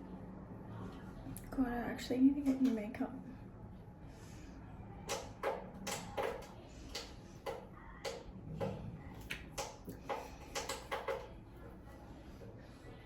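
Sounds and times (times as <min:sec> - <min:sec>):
makeup tools tapping and clicking: 0:05.1 - 0:11.3.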